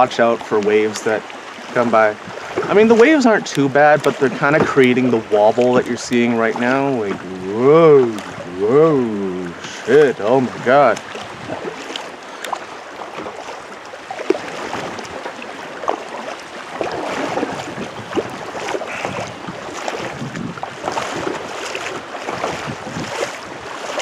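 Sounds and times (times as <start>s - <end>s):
choppy water slapping kayak: 0.0s - 24.0s
paddle splashes: 0.0s - 24.0s.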